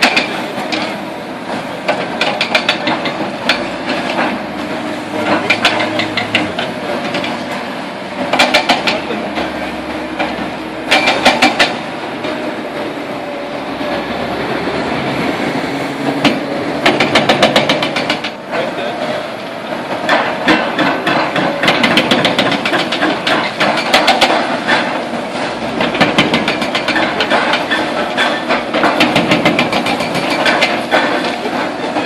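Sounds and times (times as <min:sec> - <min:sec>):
excavator engine under load: 0:00.0 - 0:32.0
rapid sharp clattering strikes: 0:16.2 - 0:18.6.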